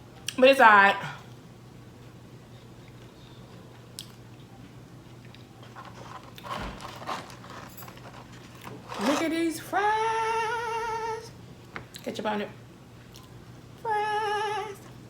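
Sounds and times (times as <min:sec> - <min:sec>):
small crunches and clicks: 0:05.2 - 0:09.4.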